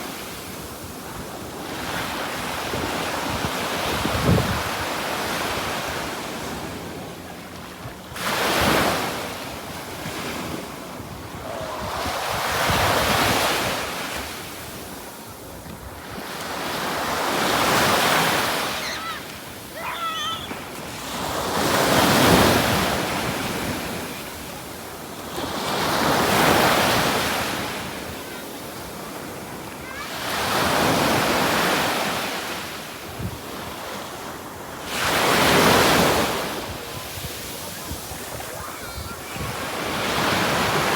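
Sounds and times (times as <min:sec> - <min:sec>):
ocean waves breaking on beach: 0:00.0 - 0:40.9
wind noise: 0:02.8 - 0:04.9, 0:10.9 - 0:13.9.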